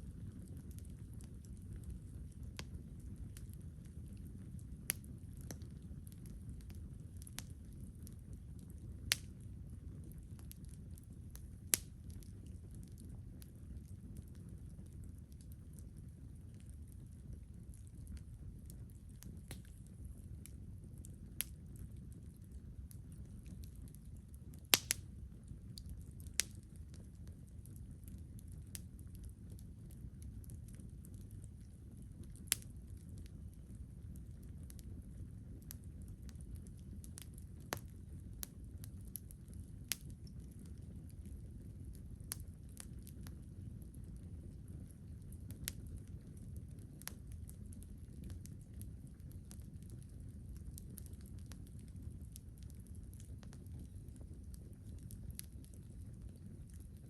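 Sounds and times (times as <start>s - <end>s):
campfire crackling: 0.0s - 57.0s
sharp fire pops: 19.5s - 19.8s, 24.7s - 25.1s.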